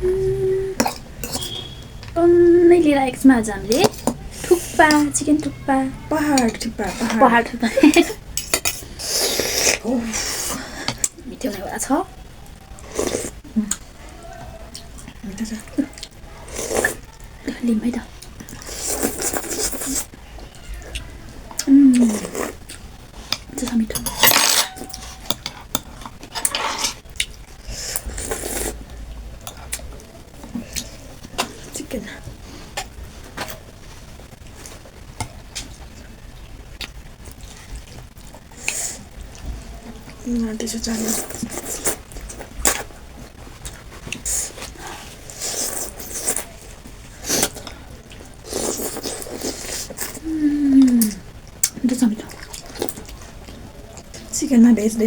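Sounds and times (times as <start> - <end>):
noisy eating: 0.0 - 55.0
person slurping and chewing soup: 0.4 - 1.8, 8.4 - 11.2, 12.8 - 14.1, 15.9 - 17.2, 18.2 - 20.2, 20.9 - 36.0, 40.9 - 54.3
utensils clinking on a bowl: 23.9 - 27.0.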